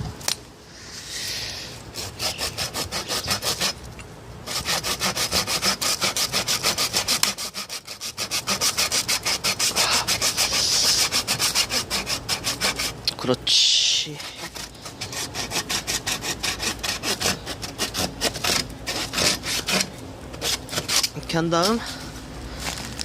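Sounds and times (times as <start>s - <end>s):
hand saw cutting wood: 1.9s - 3.8s, 4.4s - 13.1s, 14.1s - 21.8s.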